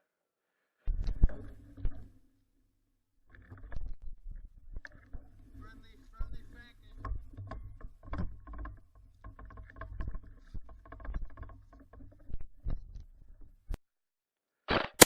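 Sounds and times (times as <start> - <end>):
knocks and clicks: 3.3 - 13.1
sharp crack: 14.7 - 15.0.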